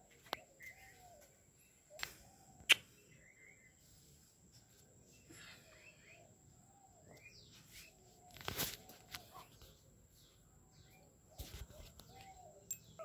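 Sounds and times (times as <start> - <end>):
birds chirping: 0.0 - 13.0
brief rustle: 7.6 - 9.8.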